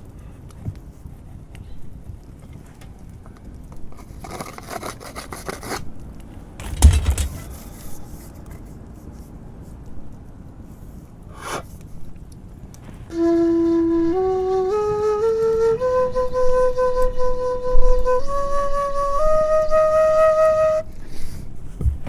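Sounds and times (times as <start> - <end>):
scraping on bamboo flute: 4.0 - 5.9
loud hollow knock: 6.6 - 8.0.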